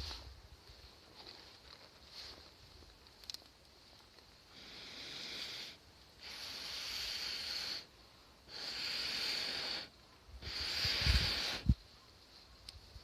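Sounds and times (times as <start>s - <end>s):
hissing puffs into campfire: 4.4s - 13.0s.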